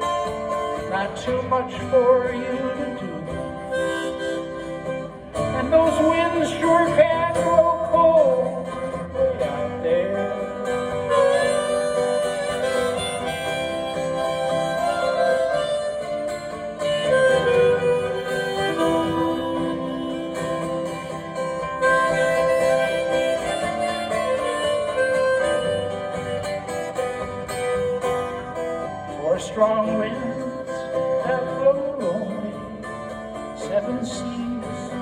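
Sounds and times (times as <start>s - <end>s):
harmonica playing: 0.0s - 35.0s
strummed acoustic guitar: 0.0s - 35.0s.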